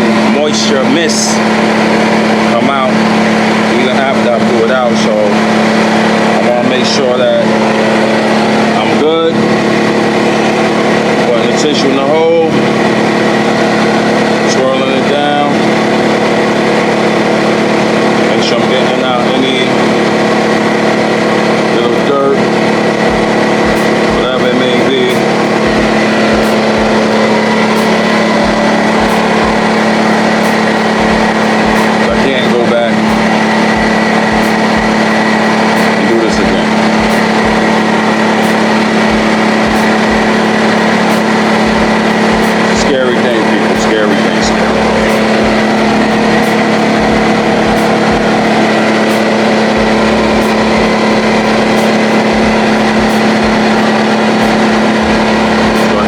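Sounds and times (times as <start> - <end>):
air compressor running: 0.0 - 56.0.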